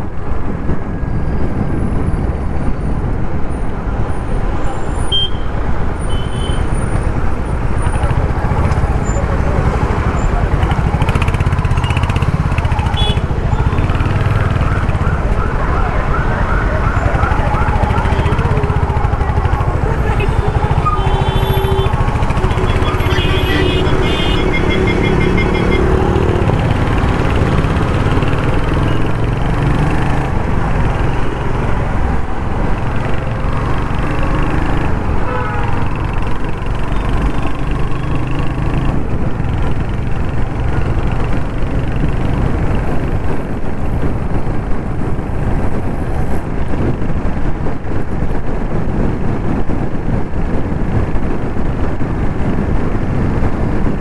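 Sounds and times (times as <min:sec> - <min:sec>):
road and traffic noise: 0:00.0 - 0:54.0
traffic horn tones: 0:04.0 - 0:29.9, 0:34.0 - 0:38.5
motorcycle engine running: 0:05.2 - 0:46.9.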